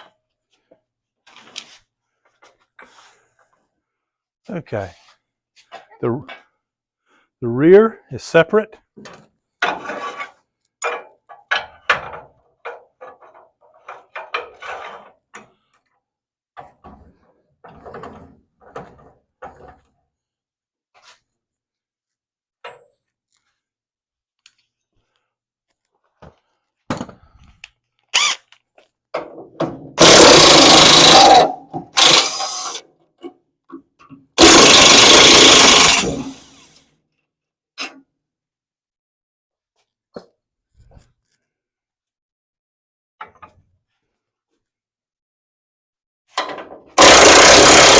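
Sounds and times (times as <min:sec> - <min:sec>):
power tool running: 0:30.0 - 0:32.8, 0:34.4 - 0:36.6, 0:47.0 - 0:47.9.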